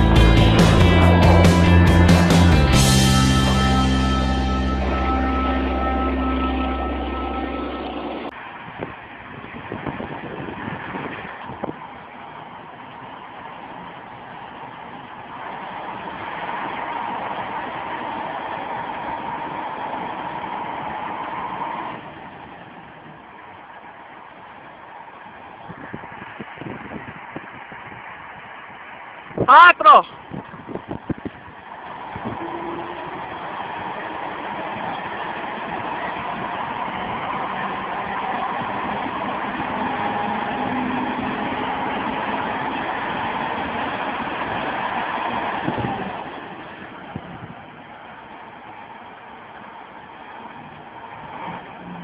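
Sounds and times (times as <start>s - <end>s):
dense even noise: 0.0s - 9.1s
vehicle engine running: 0.0s - 9.2s
low engine rumble: 0.0s - 29.2s
vehicle engine whining: 0.0s - 52.0s.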